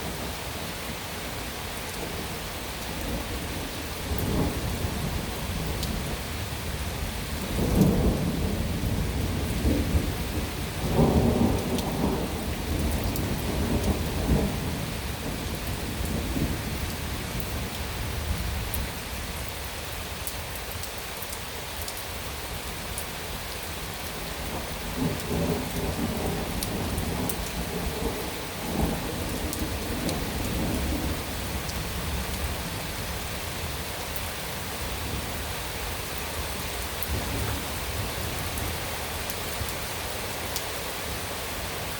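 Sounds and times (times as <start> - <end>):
heavy rain pouring: 0.0 - 41.9
thunder rumbling: 2.8 - 18.7, 24.3 - 33.8.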